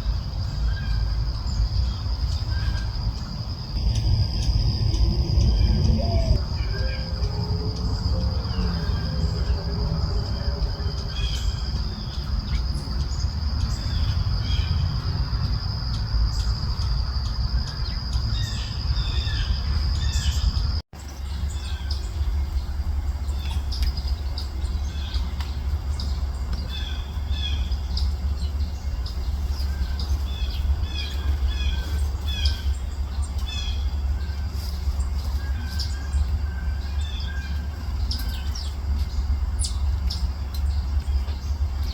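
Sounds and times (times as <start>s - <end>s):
small birds chirping: 0.0s - 41.9s
steady low rumble: 0.0s - 41.9s
thin high tone: 3.8s - 11.6s.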